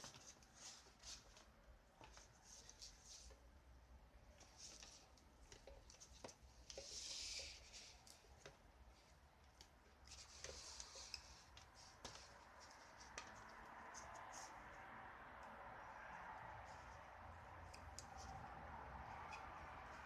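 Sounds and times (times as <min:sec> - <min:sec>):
light clicks and rubbing: 0:04.2 - 0:14.8, 0:16.6 - 0:20.0.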